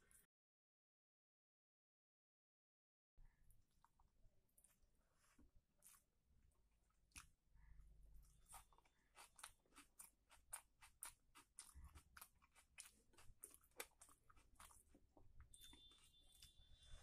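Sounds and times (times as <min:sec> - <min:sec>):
wet crunchy chewing: 0:08.2 - 0:16.9.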